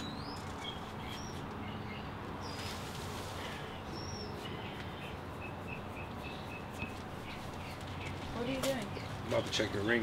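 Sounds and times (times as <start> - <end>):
outdoor background hum: 0.0 - 10.0
small birds chirping: 0.0 - 10.0.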